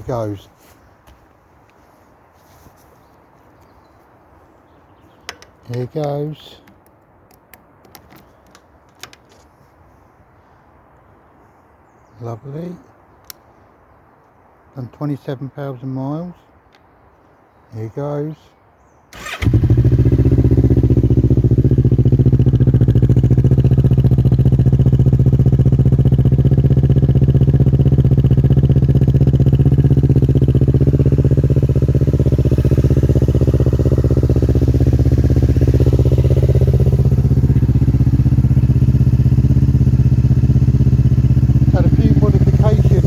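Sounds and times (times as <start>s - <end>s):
loud motorcycle engine idling: 19.2s - 43.0s.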